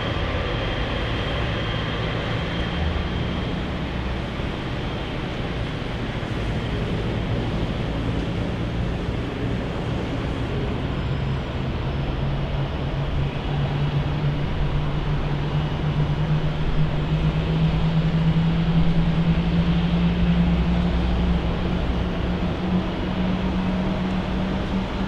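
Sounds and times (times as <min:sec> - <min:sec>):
jet airliner engine hum: 0:00.0 - 0:25.0.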